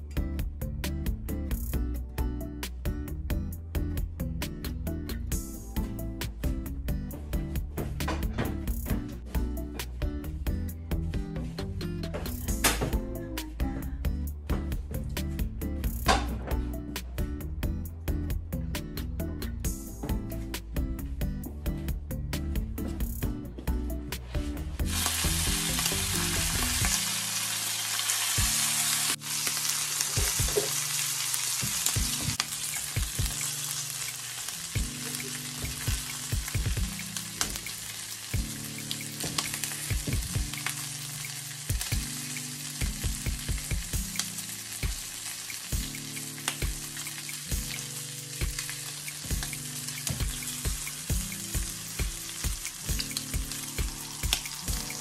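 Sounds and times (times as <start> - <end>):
quiet background music: 0.0 - 55.0
fat sizzling in a pan: 24.8 - 55.0.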